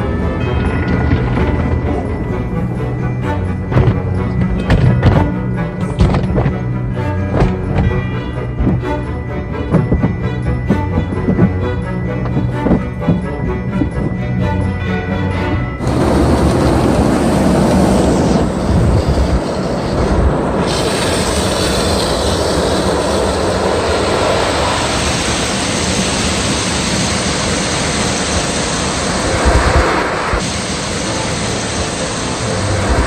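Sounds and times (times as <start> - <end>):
car wash water jets and blowers: 0.0 - 14.6, 15.4 - 33.0.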